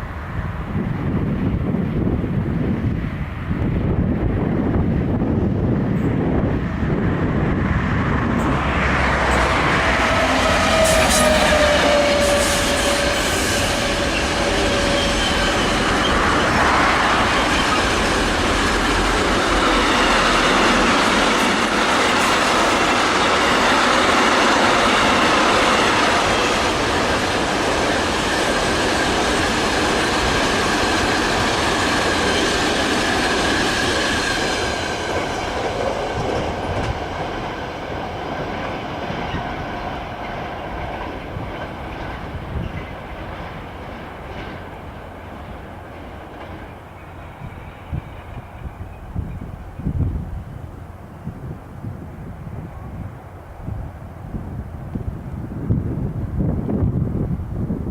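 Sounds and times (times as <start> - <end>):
train rumbling by: 0.0 - 57.9
wheel squeal: 9.3 - 16.6.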